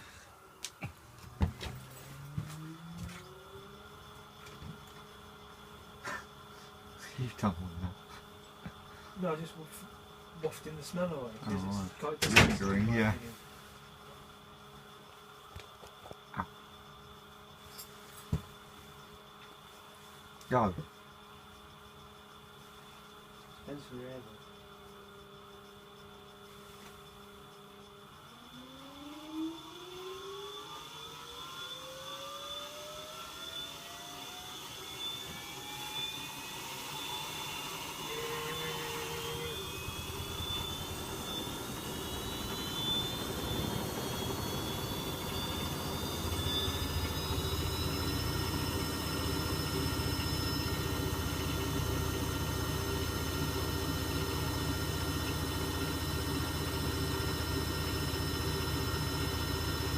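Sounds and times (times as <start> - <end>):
washing machine motor whine: 0.0 - 59.9.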